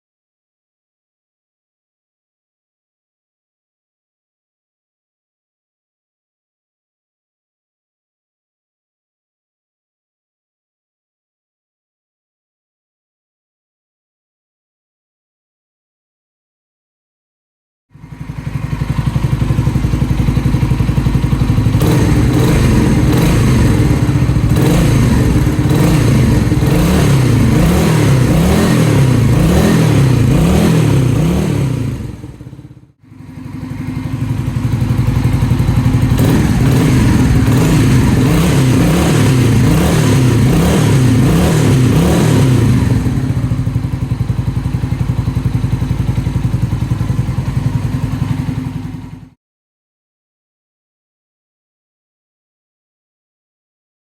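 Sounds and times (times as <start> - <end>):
engine exhaust idling and revving: 17.9 - 49.4.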